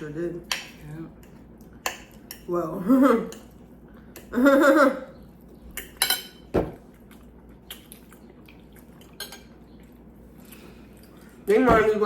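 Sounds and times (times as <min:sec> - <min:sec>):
cutlery and dishes clinking: 0:05.8 - 0:06.6.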